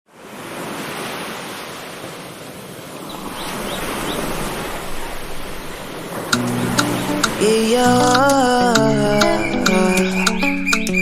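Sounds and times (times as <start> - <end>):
rushing surf: 0.1 - 11.0.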